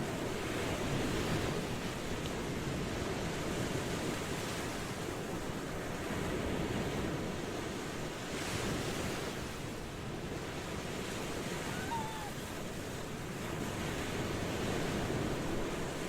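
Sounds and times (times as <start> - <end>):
ocean waves washing in: 0.0 - 16.0.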